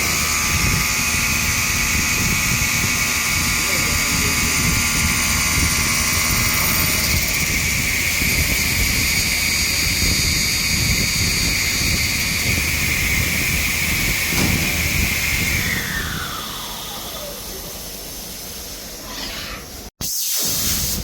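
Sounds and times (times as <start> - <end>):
cnc router spindle whine: 0.0 - 17.9.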